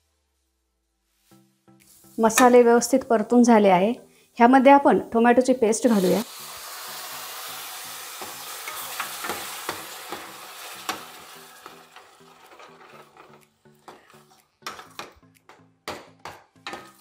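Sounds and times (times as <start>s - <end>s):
paste sizzling in hot oil: 5.8s - 13.0s
ladle scraping pan: 8.4s - 14.1s.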